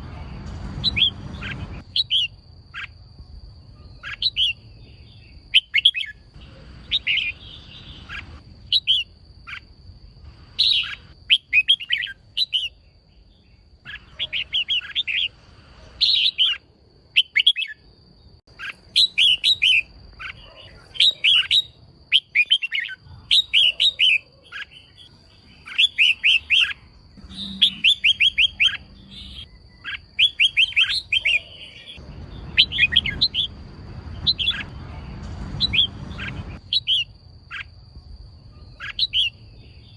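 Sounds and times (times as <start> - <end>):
bulbul chattering calls: 6.8 - 9.7, 10.6 - 12.8, 38.5 - 39.4.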